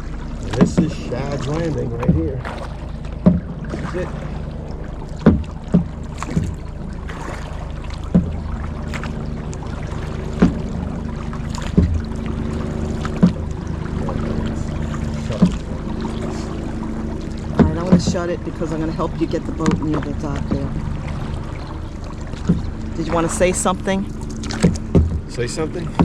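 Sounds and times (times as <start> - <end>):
paddle knocking on hull: 0.0 - 26.0
steady low hum: 0.0 - 26.0.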